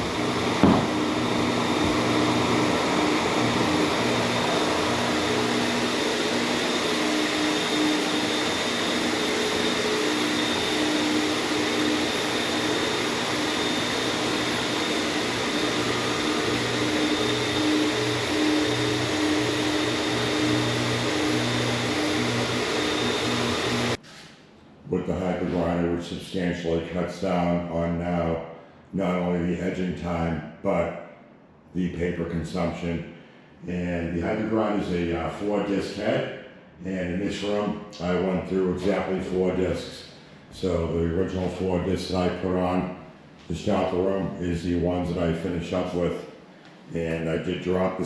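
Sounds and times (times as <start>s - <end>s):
floor grinder motor hum: 0.0s - 24.2s, 37.9s - 39.6s
brief knock: 0.6s - 0.9s.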